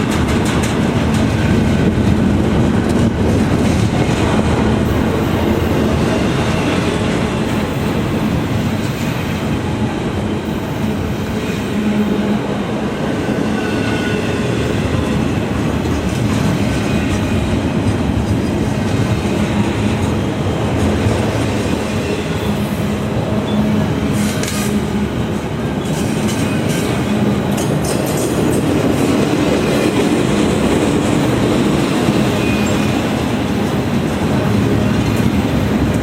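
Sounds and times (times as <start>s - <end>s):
train wheels rumbling on track: 0.0s - 36.0s
train wheel squeal: 10.4s - 15.4s, 21.6s - 28.6s, 31.2s - 33.2s.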